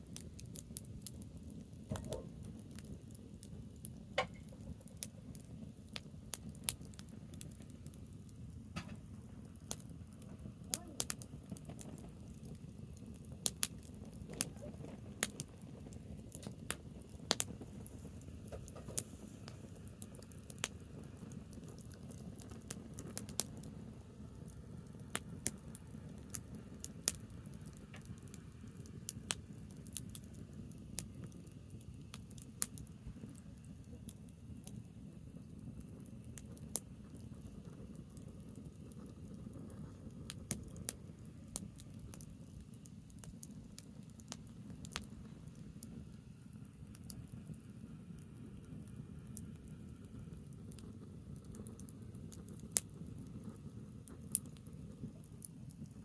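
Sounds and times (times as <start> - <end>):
branch fire pops and snaps: 1.8 - 2.9, 13.4 - 15.5, 16.3 - 20.8, 21.7 - 23.6.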